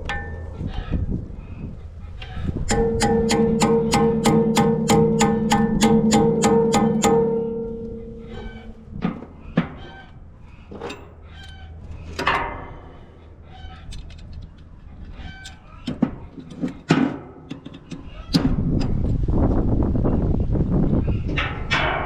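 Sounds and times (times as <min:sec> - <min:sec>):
chickens clucking: 0:00.4 - 0:02.9, 0:07.1 - 0:16.9.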